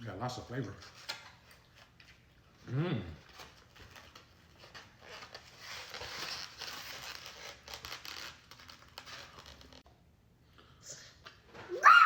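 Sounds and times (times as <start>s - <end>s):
wrapper crinkling and rustling: 3.2s - 9.8s.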